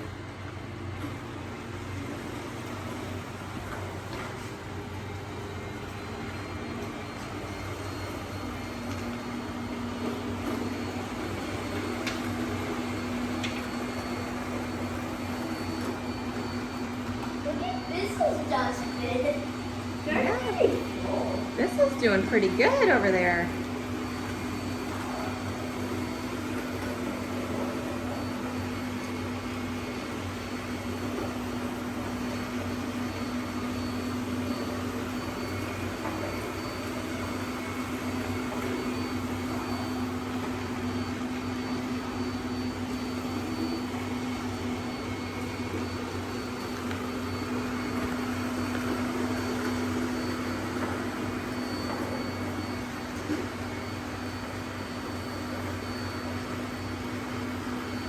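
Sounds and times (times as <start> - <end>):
robot vacuum motor whirring: 3.5 - 31.2.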